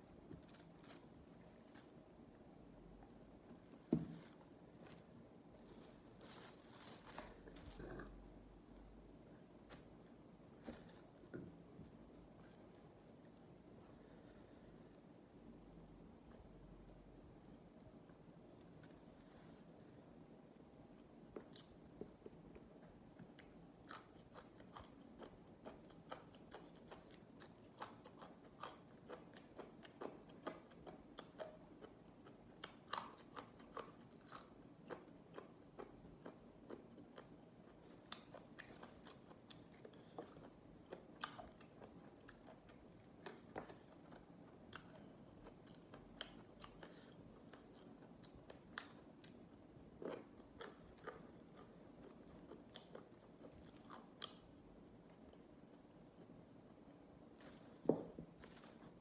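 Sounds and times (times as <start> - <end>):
chewing crisp raw vegetables: 21.4 - 56.4.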